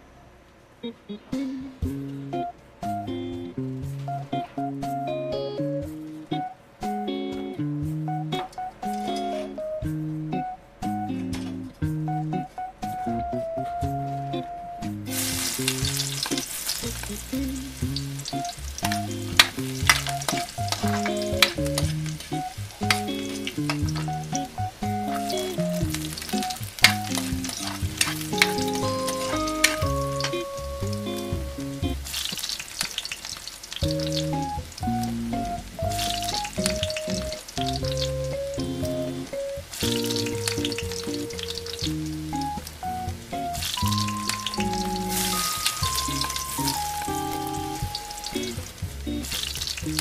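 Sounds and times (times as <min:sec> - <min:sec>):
background music melody: 0:00.0 - 0:32.4, 0:33.7 - 0:50.0
sizzling in hot oil: 0:15.1 - 0:50.0.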